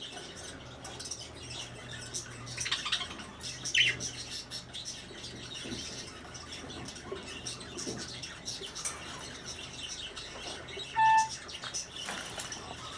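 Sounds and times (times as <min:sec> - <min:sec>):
budgerigars chattering: 0:09.5 - 0:12.0
loud beep-like tone: 0:11.0 - 0:11.3.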